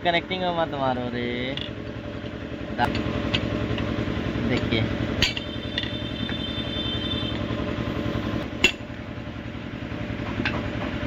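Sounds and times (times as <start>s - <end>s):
engine idling hum: 0.0s - 11.0s
high ringing metallic tone: 5.2s - 8.1s.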